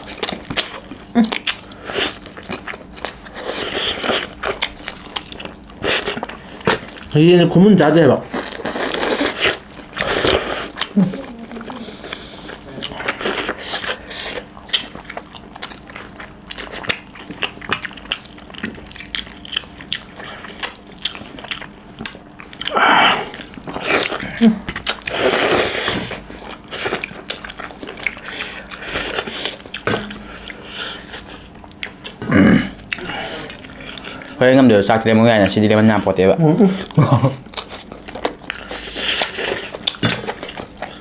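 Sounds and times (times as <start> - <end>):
chewing and wet mouth clicks: 12.8 - 32.2, 36.8 - 41.0.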